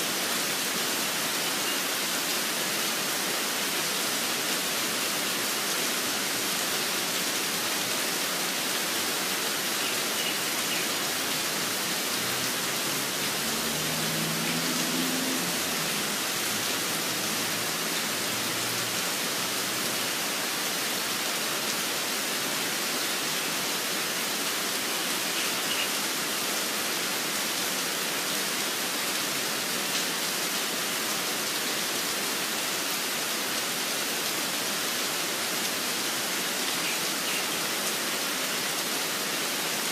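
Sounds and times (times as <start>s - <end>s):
steady rain hiss: 0.0s - 39.9s
faint bird chirps: 25.3s - 26.0s.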